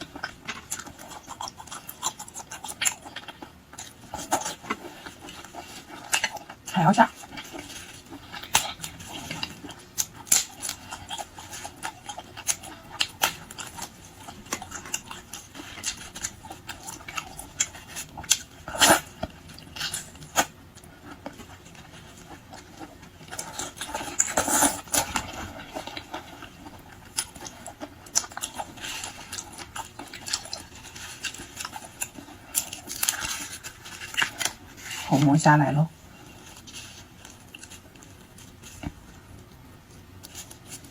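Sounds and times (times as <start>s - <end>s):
wet chewing mouth noises: 0.0s - 35.1s.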